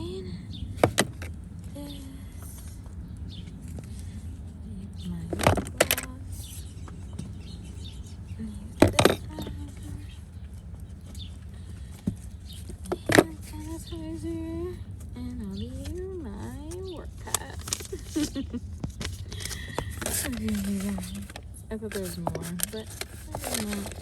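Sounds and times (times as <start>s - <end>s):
low hum: 0.0s - 24.0s
small containers clacking: 0.8s - 1.3s, 5.3s - 6.2s, 8.7s - 14.0s, 15.8s - 24.0s.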